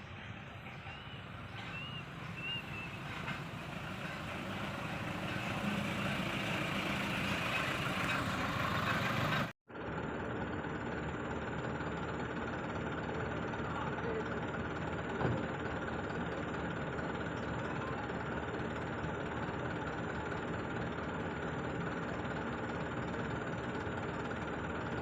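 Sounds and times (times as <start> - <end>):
excavator diesel engine rumble: 0.0 - 25.0
faint short high chirps: 0.6 - 3.3.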